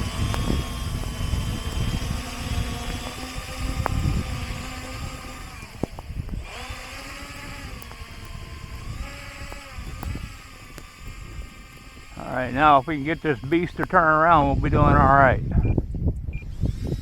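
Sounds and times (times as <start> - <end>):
model plane motors whining: 0.0 - 17.0
wind buffeting microphone: 0.0 - 17.0.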